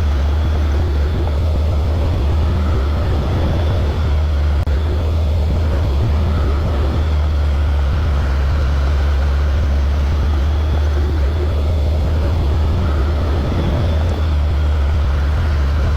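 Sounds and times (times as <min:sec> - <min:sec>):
excavator diesel engine droning: 0:00.0 - 0:15.9.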